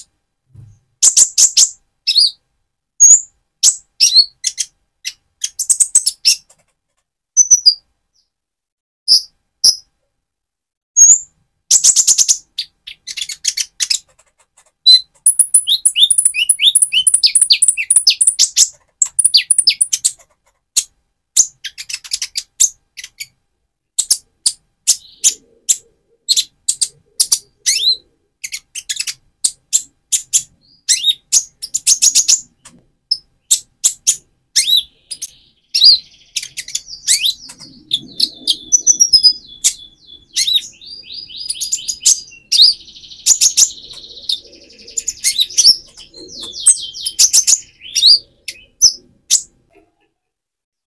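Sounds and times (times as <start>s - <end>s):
sunbird chirping and trilling: 7.4s - 8.4s, 9.1s - 9.9s, 11.0s - 14.1s, 14.8s - 20.2s, 24.0s - 49.5s.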